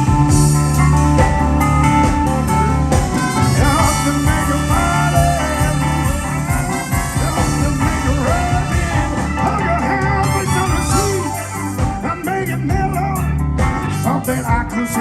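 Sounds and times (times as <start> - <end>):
lead guitar bending notes: 0.0 - 13.8
blues band playing: 0.0 - 15.0.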